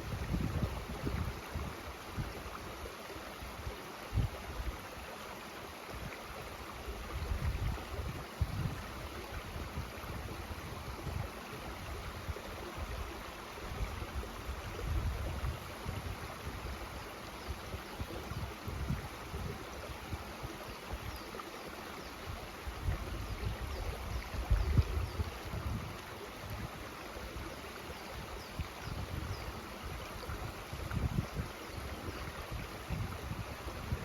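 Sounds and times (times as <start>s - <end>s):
stream rushing water: 0.0s - 34.0s.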